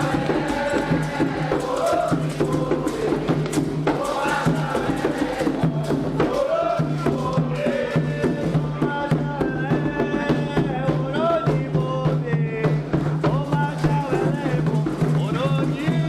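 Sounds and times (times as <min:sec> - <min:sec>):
group of voices chanting: 0:00.0 - 0:10.7
hand drums: 0:00.0 - 0:16.0
percussion strokes: 0:00.0 - 0:16.0.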